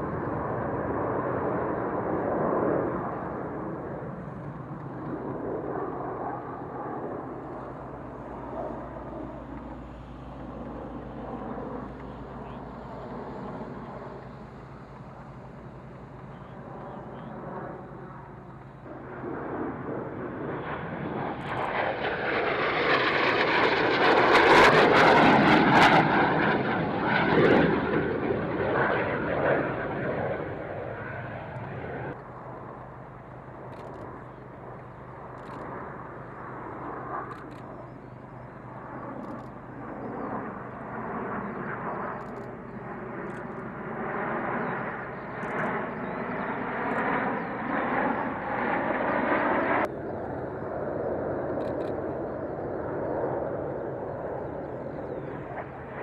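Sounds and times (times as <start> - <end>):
aircraft engine tone: 0.0 - 56.0
aircraft flying past: 0.0 - 56.0.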